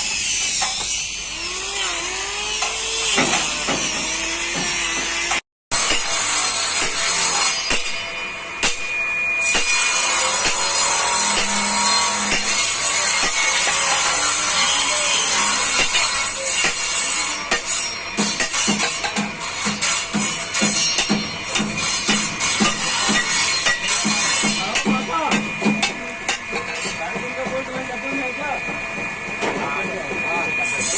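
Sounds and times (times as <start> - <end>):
power tool cutting or grinding: 0.0 - 7.9, 9.4 - 25.5.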